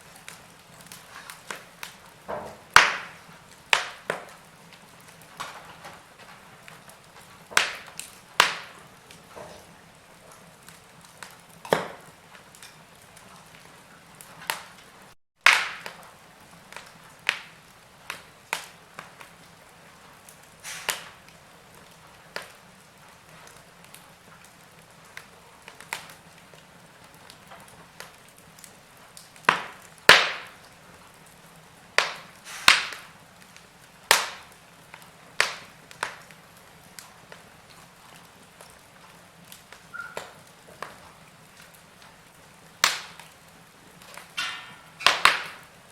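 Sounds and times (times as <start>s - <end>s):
fire crackling and popping: 0.0s - 45.9s.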